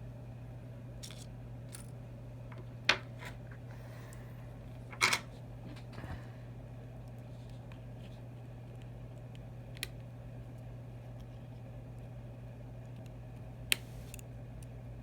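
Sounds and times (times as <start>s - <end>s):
steady low hum: 0.0s - 15.0s
small clicks of phone parts: 12.8s - 14.8s.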